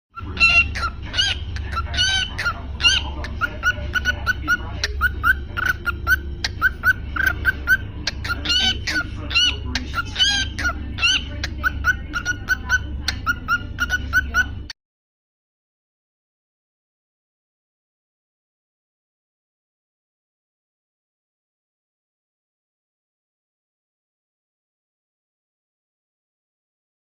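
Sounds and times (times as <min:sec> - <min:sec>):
cockatiel chirping and warbling: 0:00.2 - 0:14.7.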